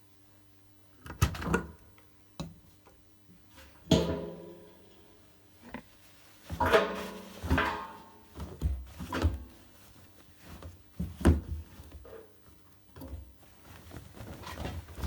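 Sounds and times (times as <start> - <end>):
washing machine parts clunking: 6.5 - 9.7.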